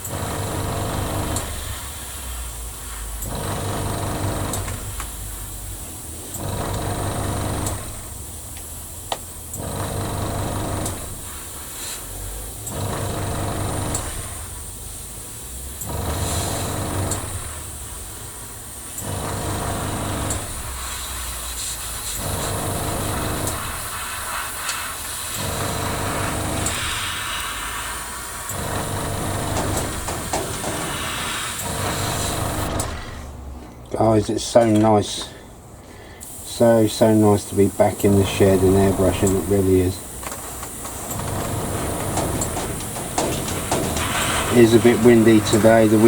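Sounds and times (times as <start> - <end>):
airbrush compressor humming: 0.0 - 33.5, 36.2 - 46.0
airbrush spraying air hiss: 1.4 - 3.2, 11.1 - 12.8, 13.6 - 33.1, 36.2 - 46.0.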